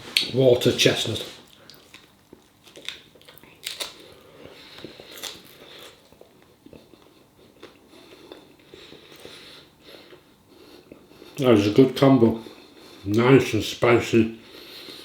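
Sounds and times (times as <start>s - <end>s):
chewing crunchy food: 1.3s - 11.4s.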